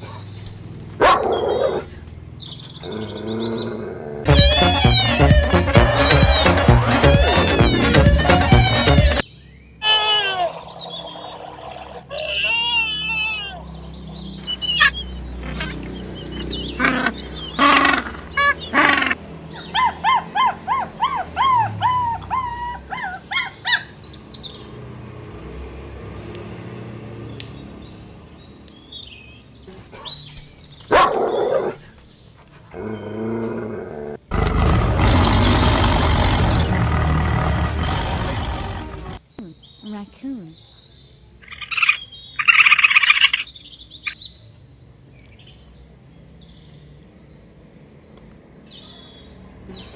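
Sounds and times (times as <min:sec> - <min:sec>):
other animal calls: 0:02.8 - 0:09.2, 0:09.8 - 0:24.0, 0:34.3 - 0:39.2, 0:41.4 - 0:43.6
bird chirps: 0:08.5 - 0:24.7, 0:39.2 - 0:44.5.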